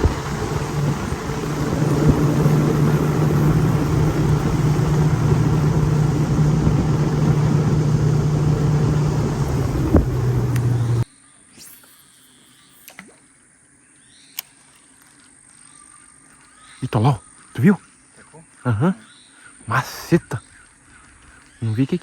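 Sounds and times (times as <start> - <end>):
boat motor droning: 0.0 - 11.0
water rushing: 0.0 - 11.0.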